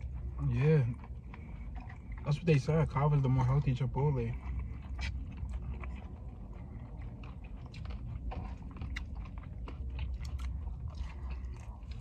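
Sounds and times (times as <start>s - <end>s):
chewing with mouth clicks: 0.0s - 12.0s
low steady rumble: 0.0s - 12.0s.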